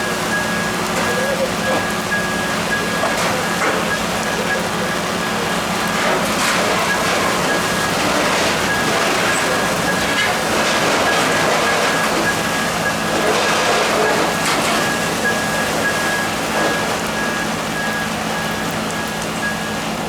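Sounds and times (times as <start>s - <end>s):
high electronic beeps: 0.0s - 6.0s
machinery and fire rushing: 0.0s - 20.0s.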